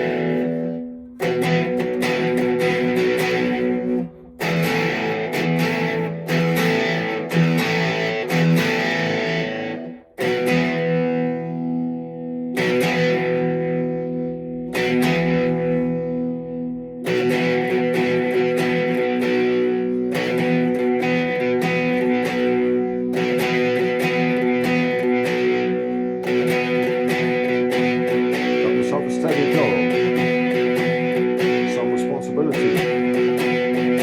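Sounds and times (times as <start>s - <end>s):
blues-rock electric guitar chords: 0.0s - 34.0s.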